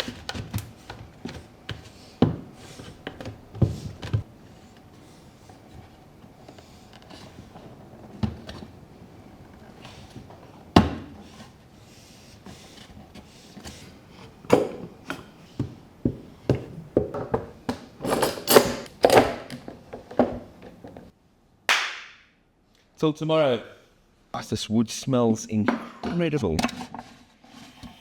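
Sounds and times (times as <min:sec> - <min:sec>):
wood and tools knocking on workbench: 0:15.6 - 0:21.0.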